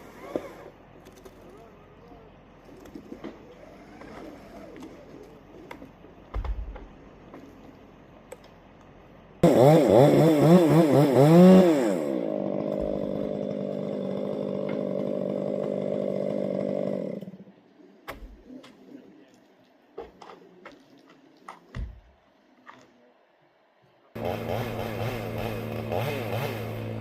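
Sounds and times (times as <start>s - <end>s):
chainsaw revving: 9.4s - 17.5s, 24.2s - 27.0s.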